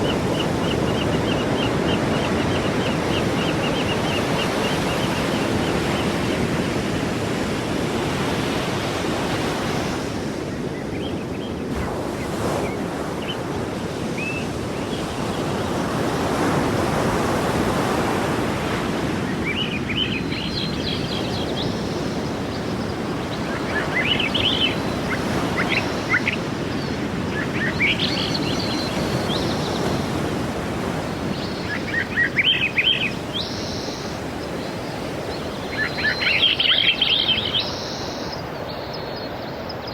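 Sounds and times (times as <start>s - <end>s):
sea waves washing onto shore: 11.6s - 39.8s
small birds chirping: 19.4s - 39.9s.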